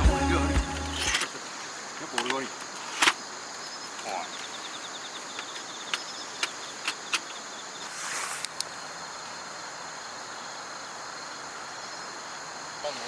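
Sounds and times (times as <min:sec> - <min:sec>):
night insects trilling: 0:01.0 - 0:13.0
brief hiss: 0:07.9 - 0:08.6.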